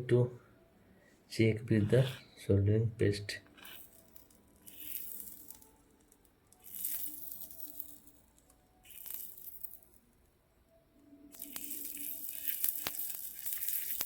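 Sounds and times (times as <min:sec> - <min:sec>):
soldering iron sizzling: 0:08.8 - 0:09.9, 0:11.3 - 0:14.0.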